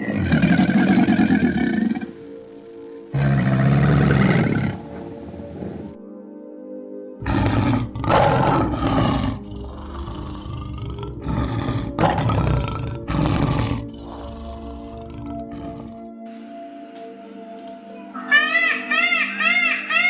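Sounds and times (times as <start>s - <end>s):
lion roaring: 0.0s - 2.2s, 3.1s - 4.9s, 7.2s - 16.1s
background music: 0.0s - 20.0s.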